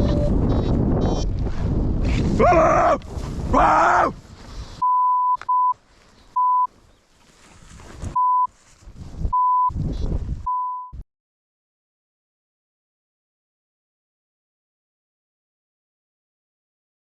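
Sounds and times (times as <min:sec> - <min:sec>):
censor bleeps: 0:00.0 - 0:01.3, 0:04.8 - 0:05.8, 0:06.4 - 0:06.7, 0:08.2 - 0:08.5, 0:09.3 - 0:09.8, 0:10.5 - 0:11.0.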